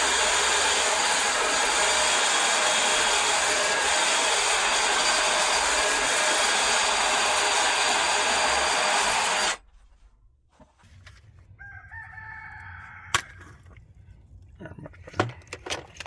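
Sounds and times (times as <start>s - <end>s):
power tool running: 0.0s - 9.6s.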